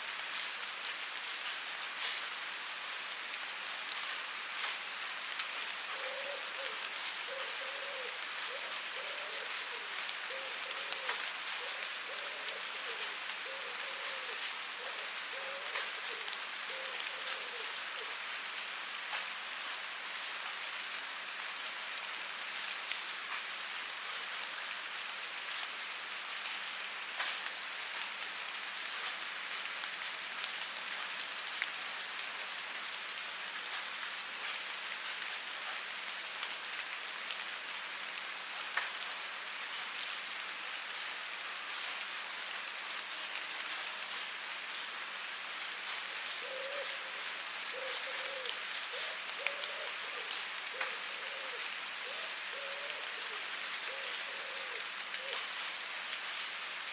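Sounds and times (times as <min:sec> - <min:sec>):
rain falling: 0:00.0 - 0:56.9.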